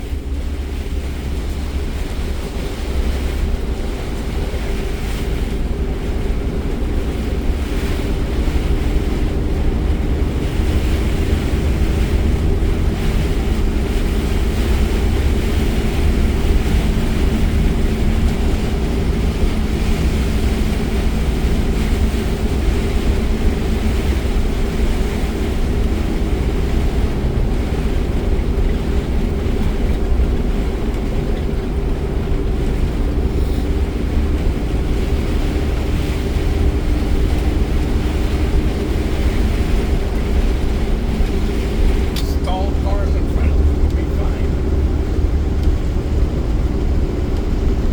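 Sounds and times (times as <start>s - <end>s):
deep low rumble: 0.0s - 47.9s
rain and wind on car body: 0.0s - 47.9s
tyres on wet road: 0.0s - 47.9s
faint steady drone: 33.1s - 47.9s.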